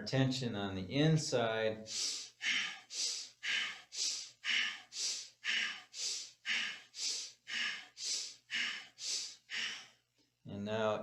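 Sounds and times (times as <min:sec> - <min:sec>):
rapid breathing through nose: 0:01.8 - 0:10.1.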